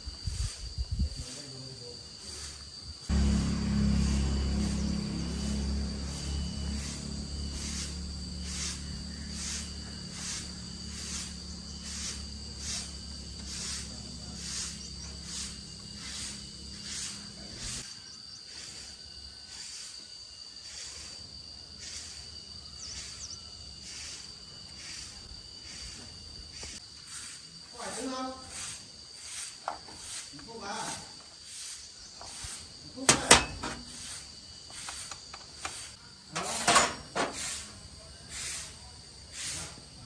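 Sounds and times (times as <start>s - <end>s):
insects chirping: 0.0s - 40.0s
continuous high buzz: 2.9s - 17.9s.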